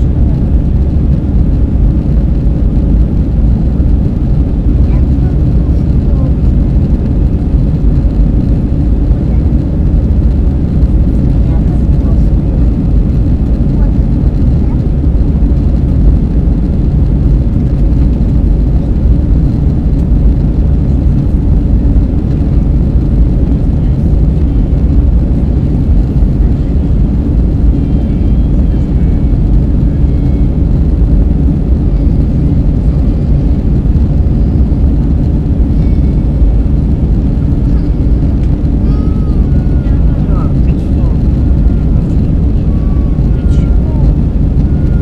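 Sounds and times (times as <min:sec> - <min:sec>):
airliner cabin roar: 0:00.0 - 0:45.0.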